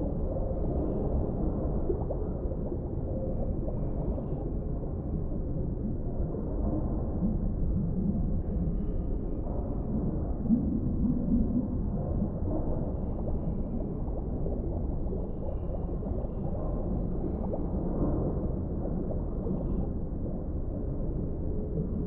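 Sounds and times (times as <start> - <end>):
muffled underwater rumble: 0.0 - 22.0
water gurgling and bubbling: 0.1 - 22.0.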